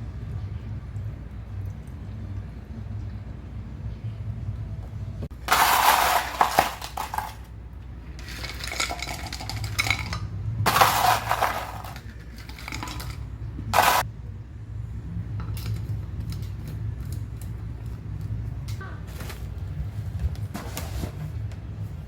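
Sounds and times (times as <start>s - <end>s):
steady low hum: 0.0s - 22.0s
dishes and cutlery clattering: 5.5s - 7.5s, 8.2s - 14.0s.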